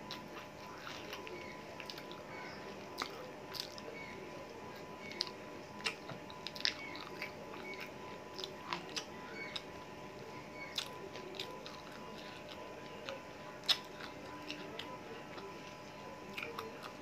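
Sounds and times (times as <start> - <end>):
person chewing and biting meat: 4.8 - 9.8, 10.6 - 17.0.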